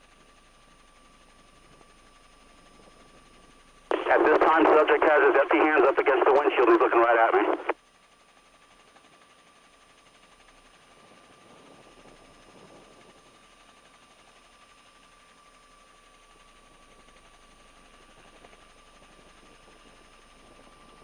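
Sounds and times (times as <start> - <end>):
radio static hiss: 3.9 - 7.8.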